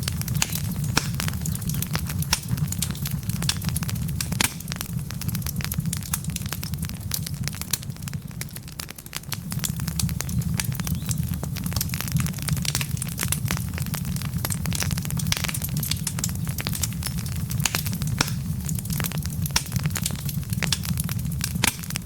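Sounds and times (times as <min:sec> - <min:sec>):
logs crackling and snapping: 0:00.0 - 0:22.0
low rumble of flames: 0:00.0 - 0:22.0.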